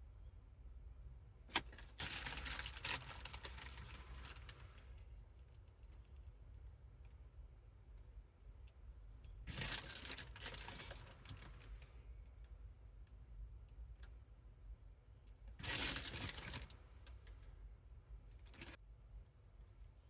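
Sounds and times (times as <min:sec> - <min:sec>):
packaging crinkling and tearing: 0:01.5 - 0:04.5, 0:09.5 - 0:11.5, 0:15.6 - 0:16.7.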